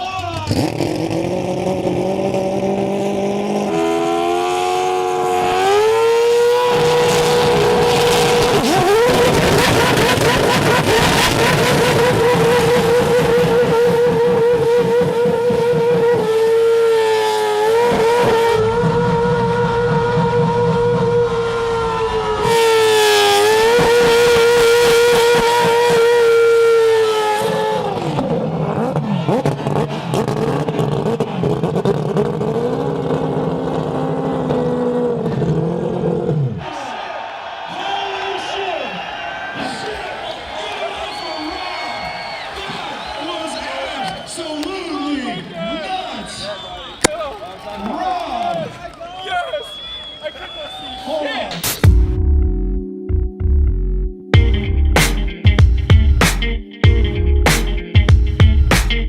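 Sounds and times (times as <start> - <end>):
rotary engine revving: 0.4 - 36.5.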